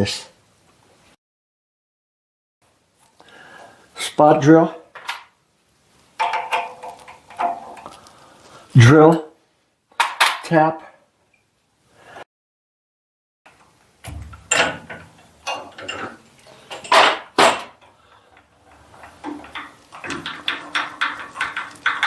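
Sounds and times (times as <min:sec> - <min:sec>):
metal tools knocking and clinking: 0:06.2 - 0:08.0, 0:14.0 - 0:18.0, 0:18.7 - 0:22.0.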